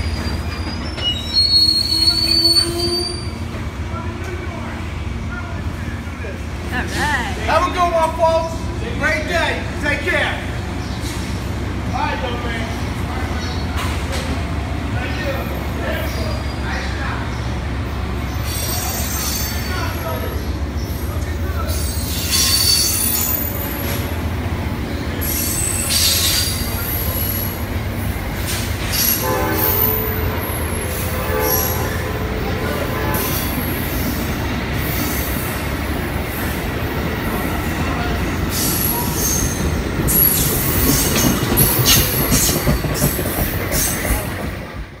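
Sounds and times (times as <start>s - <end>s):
high wheel squeal: 0.0s - 3.4s, 18.3s - 20.5s, 21.7s - 24.0s, 25.1s - 27.7s, 28.5s - 35.6s, 38.0s - 44.3s
wheels rumbling on rail: 0.0s - 45.0s.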